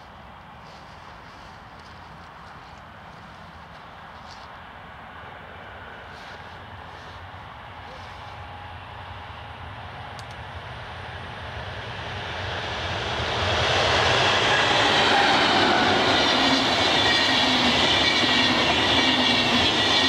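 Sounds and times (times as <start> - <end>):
diesel locomotive passing: 0.3 - 20.0
train wheels rumbling on rails: 6.0 - 20.0.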